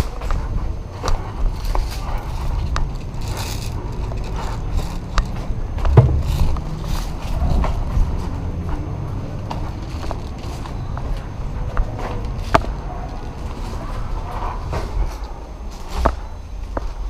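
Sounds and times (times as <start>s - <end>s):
camera rustling and rubbing: 0.0s - 8.3s
low rumble of gear: 0.0s - 17.0s
loud knock: 5.9s - 6.6s.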